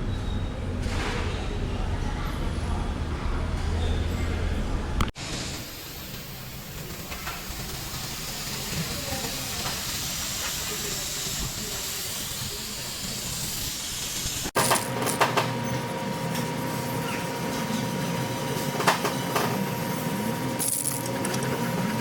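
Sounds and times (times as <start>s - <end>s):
compressed air hissing: 5.6s - 14.6s.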